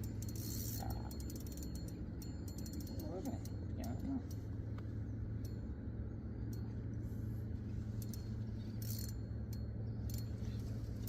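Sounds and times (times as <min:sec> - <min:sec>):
fishing reel clicking: 0:00.0 - 0:04.4, 0:08.0 - 0:10.6
steady low hum: 0:00.0 - 0:11.0.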